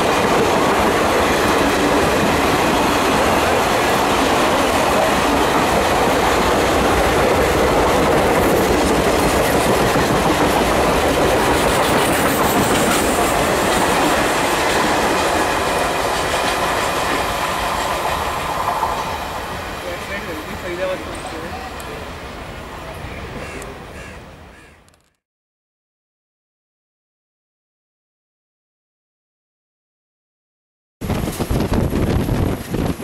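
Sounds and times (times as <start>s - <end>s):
train wheels clattering on rails: 0.0s - 21.4s.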